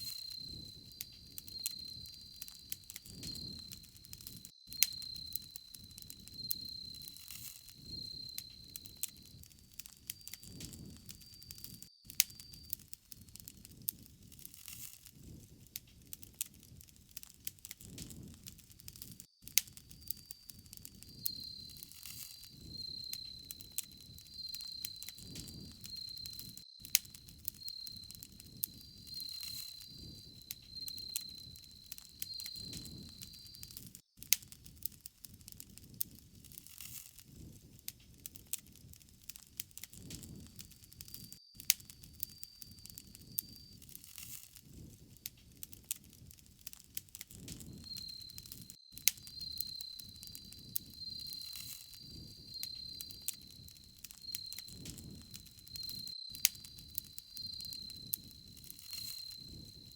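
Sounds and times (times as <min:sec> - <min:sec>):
insect trilling: 0:00.0 - 0:09.4, 0:19.8 - 0:33.9, 0:47.6 - 0:59.9
low rumble of flame: 0:00.0 - 0:36.6, 0:37.2 - 0:59.9
wood crackling and popping: 0:00.0 - 0:59.9.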